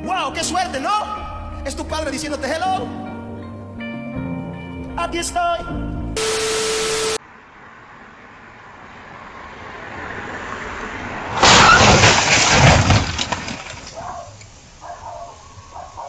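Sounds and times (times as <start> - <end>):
vehicle noise: 6.1 - 16.0
vehicle crash: 10.0 - 14.8
glass breaking: 11.4 - 14.0
debris clattering: 11.4 - 14.6.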